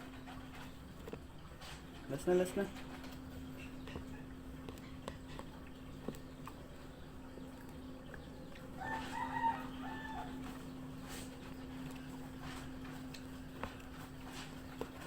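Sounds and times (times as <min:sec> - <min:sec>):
steady low hum: 0:00.0 - 0:15.0
rooster crowing: 0:08.8 - 0:10.7.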